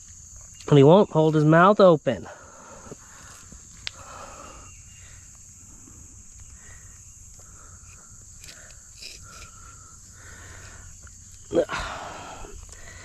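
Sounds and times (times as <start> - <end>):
faint clicks and scraping: 7.3 - 9.8.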